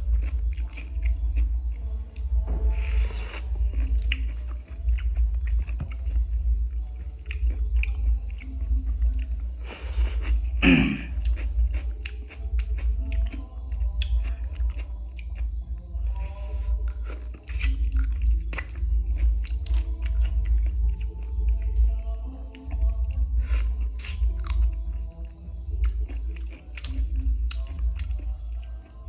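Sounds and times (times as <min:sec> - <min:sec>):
chewing and crunching salad: 0:00.0 - 0:29.0
mouth and teeth clicks: 0:11.2 - 0:15.6, 0:16.9 - 0:21.7, 0:22.5 - 0:28.9.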